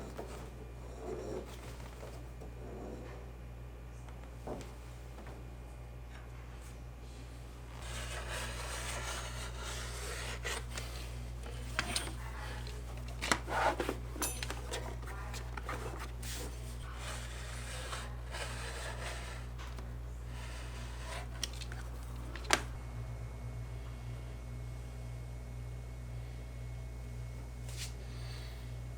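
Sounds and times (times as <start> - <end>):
steady low hum: 0.0 - 28.9
leather rubbing and scraping: 7.8 - 22.8.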